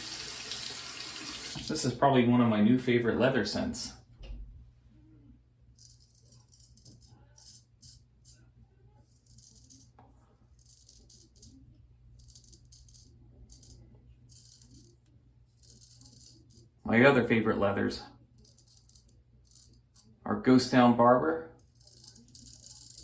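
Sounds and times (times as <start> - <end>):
razor scraping stubble: 21.6 - 23.0.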